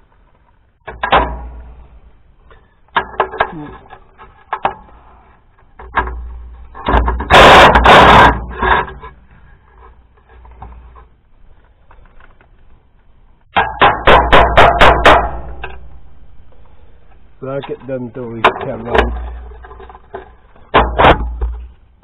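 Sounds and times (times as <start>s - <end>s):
metal rattling burst: 5.9s - 9.1s, 13.5s - 16.0s.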